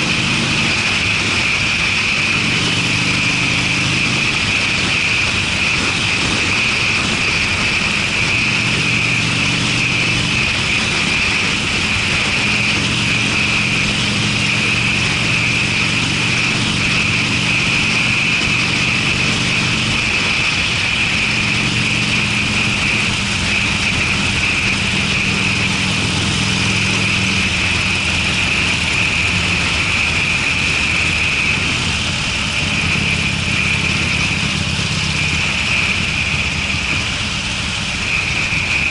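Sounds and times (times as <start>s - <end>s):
motorcycle deep exhaust note: 0.0s - 38.9s.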